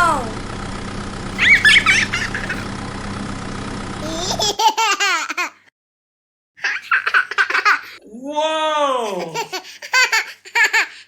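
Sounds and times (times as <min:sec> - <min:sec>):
steady hum: 0:00.0 - 0:04.1
small child laughing: 0:01.4 - 0:02.6, 0:04.0 - 0:05.7, 0:06.6 - 0:08.0, 0:09.1 - 0:11.0.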